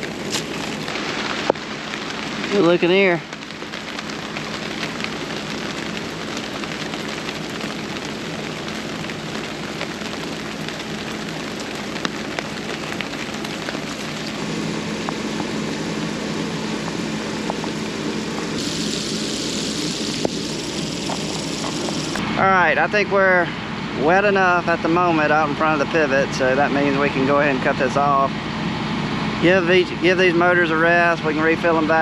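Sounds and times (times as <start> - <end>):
droplets ticking: 0.0 - 22.2
low motor hum: 0.0 - 22.4
water spraying hiss: 9.2 - 22.2
bright high hiss: 12.3 - 22.2.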